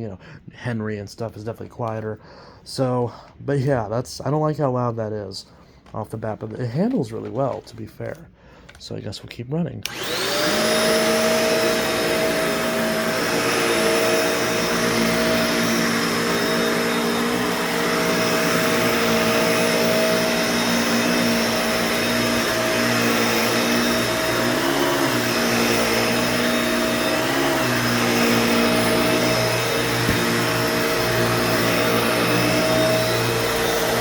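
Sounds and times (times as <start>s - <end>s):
vacuum cleaner running: 9.9s - 34.0s.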